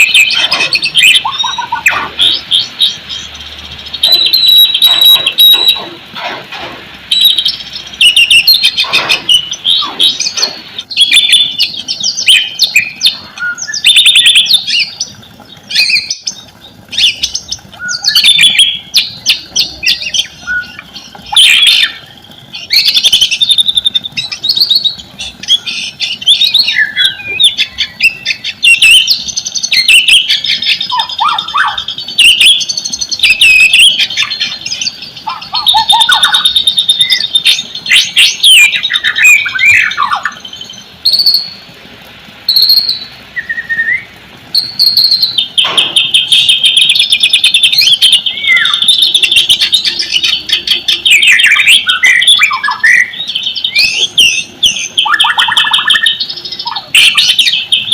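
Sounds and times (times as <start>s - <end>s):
bird singing whistles and chirps: 0.0s - 6.0s, 7.1s - 41.6s, 42.5s - 57.9s
sharp clicking bird notes: 44.6s - 52.8s.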